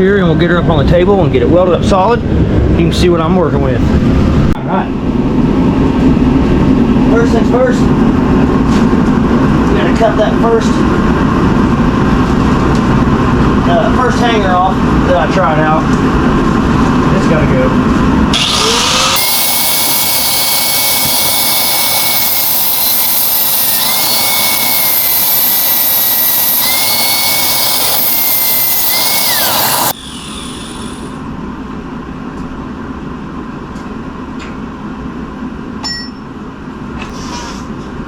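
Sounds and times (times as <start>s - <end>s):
grinder cutting steel whine: 18.3s - 30.0s.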